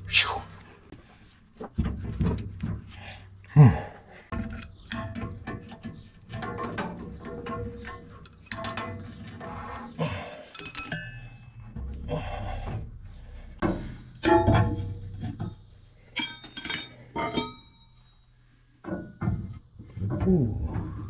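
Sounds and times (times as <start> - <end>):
metal tools clinking and clanking: 4.3 - 19.6.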